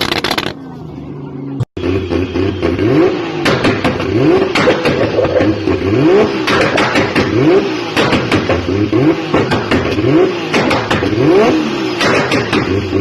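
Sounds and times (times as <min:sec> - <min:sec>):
exhaust cracks and pops: 0:00.0 - 0:00.6, 0:03.5 - 0:05.8
car engine revving: 0:01.8 - 0:13.0.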